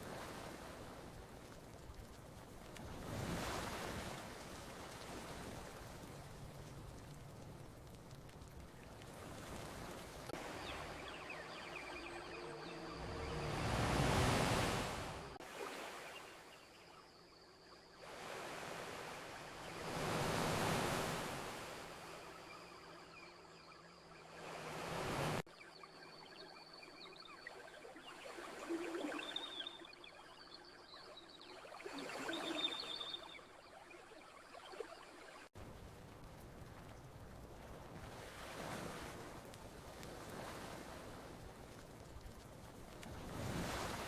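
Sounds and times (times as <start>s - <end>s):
ocean surf washing ashore: 0.0s - 16.8s, 18.0s - 25.5s, 35.6s - 44.0s.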